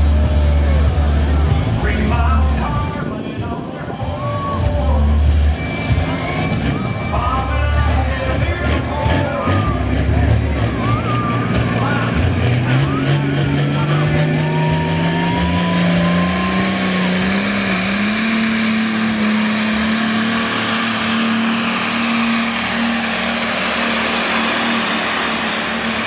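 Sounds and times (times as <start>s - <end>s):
engine running hard under load: 0.0s - 26.0s
high whine: 10.8s - 26.0s.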